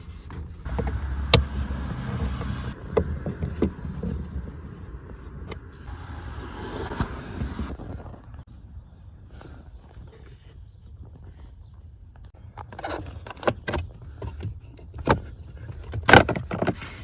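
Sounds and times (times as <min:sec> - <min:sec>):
low rumble: 0:00.7 - 0:08.6.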